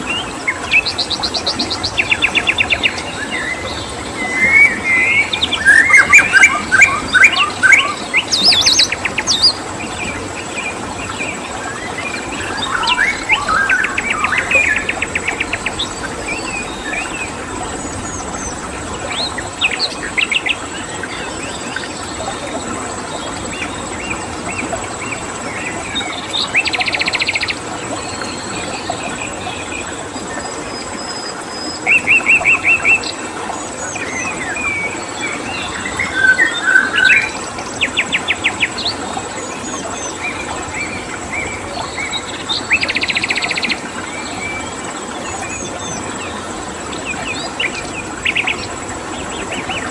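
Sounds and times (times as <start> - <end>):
running water: 0.0 - 49.9
birds chirping and whistling: 3.3 - 9.6, 12.1 - 18.6, 35.6 - 37.4.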